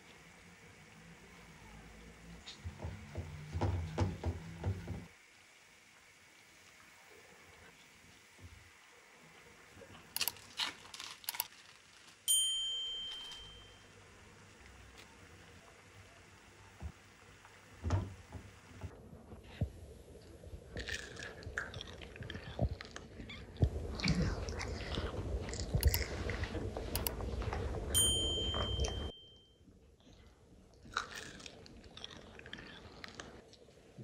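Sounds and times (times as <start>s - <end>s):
child crunching fries: 9.9s - 12.3s, 20.7s - 26.8s, 30.7s - 33.6s
high ringing tone: 12.3s - 14.0s, 27.9s - 29.7s.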